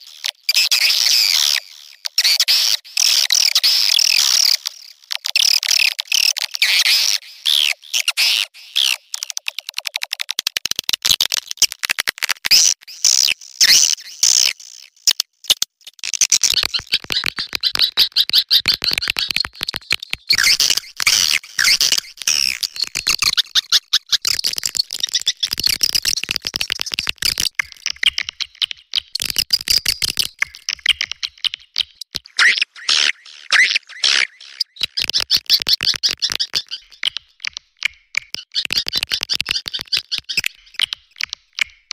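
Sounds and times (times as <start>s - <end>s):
swiftlets chittering and clicking: 34.8s - 41.7s.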